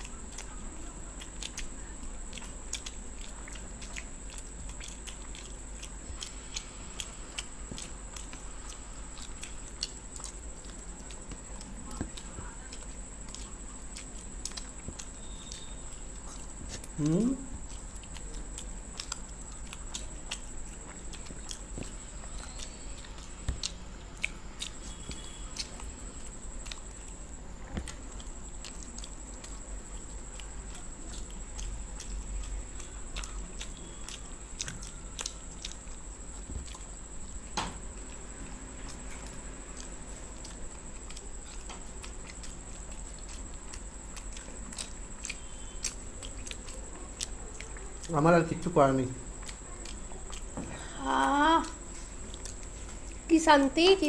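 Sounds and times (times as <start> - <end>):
faint high-pitched whine: 0.0 - 54.0
people chewing food: 0.0 - 54.0.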